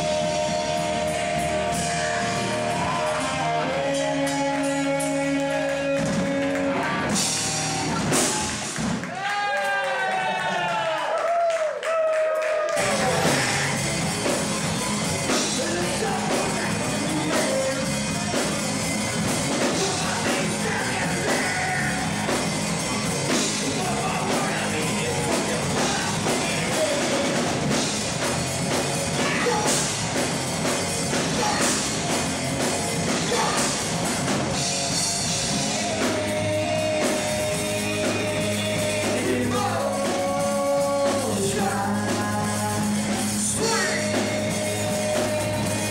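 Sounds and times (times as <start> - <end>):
person singing: 0.0 - 8.6, 15.3 - 18.7, 19.5 - 22.4, 23.0 - 27.9, 29.1 - 30.0, 31.1 - 32.2, 33.0 - 45.9
electric guitar: 0.0 - 9.1, 12.6 - 45.9
live rock band playing: 0.0 - 9.1, 12.8 - 45.9
drums: 0.0 - 45.9.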